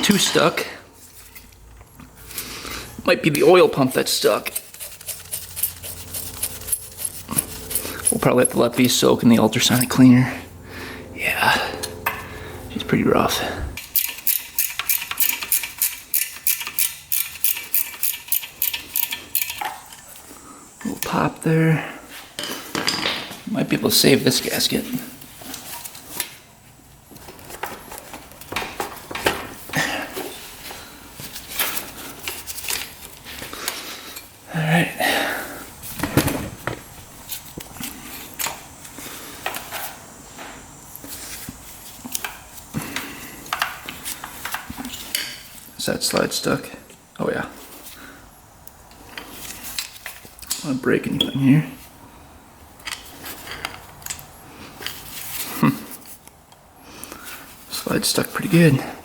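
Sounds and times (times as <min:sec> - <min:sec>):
metal parts and tools clinking: 0:00.0 - 0:01.6, 0:03.3 - 0:10.2, 0:13.8 - 0:20.3
tool tapping on metal: 0:11.8 - 0:12.3.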